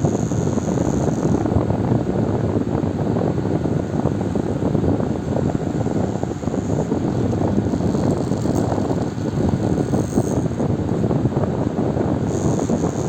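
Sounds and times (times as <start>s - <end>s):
electric fan running: 0.0s - 13.0s.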